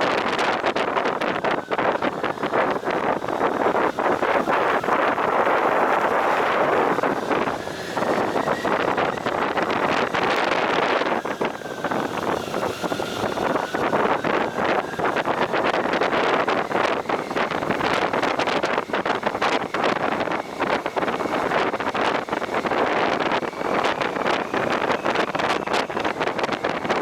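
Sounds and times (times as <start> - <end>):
motorcycle ride noise: 0.0 - 27.0
wind buffeting microphone: 0.0 - 27.0.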